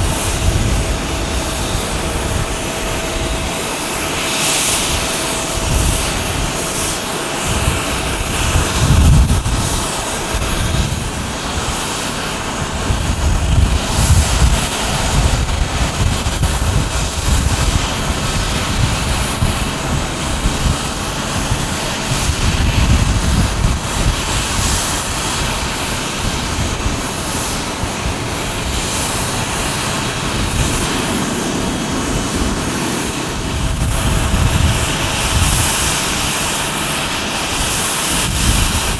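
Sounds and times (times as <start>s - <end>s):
jet engines roaring: 0.0s - 38.9s
low buffeting: 26.2s - 37.1s.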